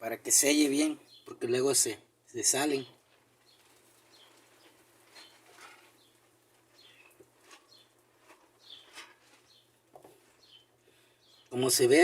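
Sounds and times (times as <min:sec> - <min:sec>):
faint bird chirps: 0:03.4 - 0:08.0, 0:08.6 - 0:11.8.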